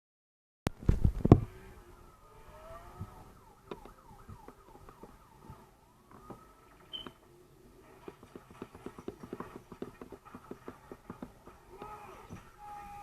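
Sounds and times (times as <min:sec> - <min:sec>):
siren wailing: 0:01.4 - 0:07.8, 0:11.6 - 0:13.0.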